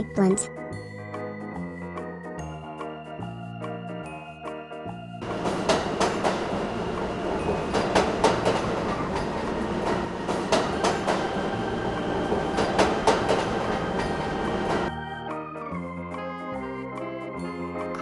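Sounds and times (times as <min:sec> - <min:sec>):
train rumbling: 0:05.2 - 0:14.9
wheels clacking over rail joints: 0:05.2 - 0:14.9.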